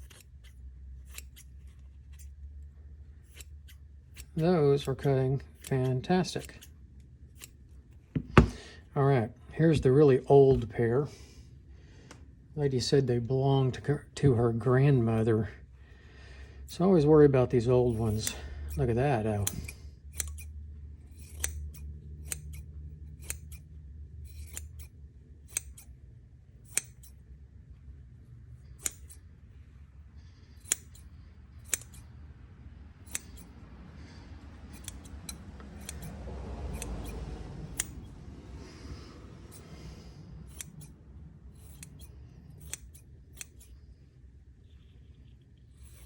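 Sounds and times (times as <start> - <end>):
scissors snipping: 0.0 - 2.4, 3.2 - 6.8, 7.4 - 7.6, 17.9 - 20.5, 21.2 - 23.7, 24.3 - 24.9, 25.5 - 25.9, 26.6 - 27.2, 28.8 - 29.2, 30.5 - 32.1, 33.0 - 43.8, 44.8 - 46.0.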